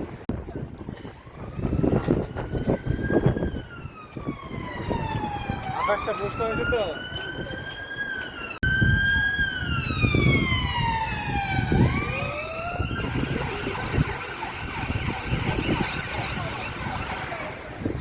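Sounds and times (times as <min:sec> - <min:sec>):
street traffic rumble: 0:00.0 - 0:18.0
siren wailing: 0:00.9 - 0:18.0.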